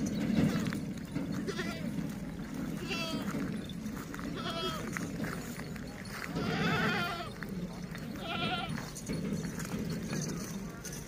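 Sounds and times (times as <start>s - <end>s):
goats bleating: 1.3s - 2.0s, 2.6s - 3.4s, 4.1s - 5.1s, 6.3s - 7.4s, 8.1s - 8.9s.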